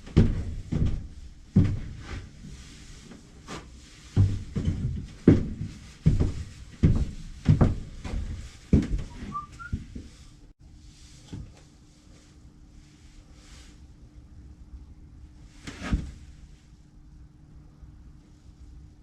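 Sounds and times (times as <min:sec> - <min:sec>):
two-note whistle: 0:09.1 - 0:09.8.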